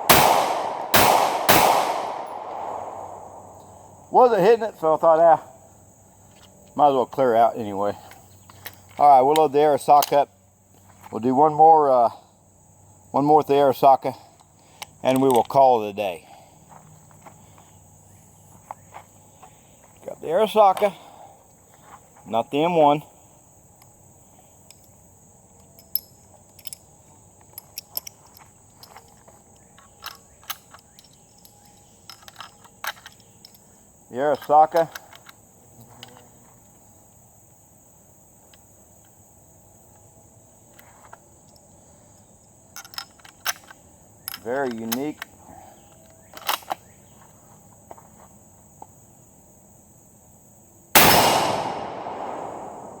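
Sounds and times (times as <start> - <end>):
rifle shot: 0.0 - 3.6, 51.0 - 53.0
crickets droning: 0.0 - 53.0
gun being handled and loaded: 8.1 - 10.2, 24.6 - 33.7, 34.3 - 35.4, 42.7 - 46.9.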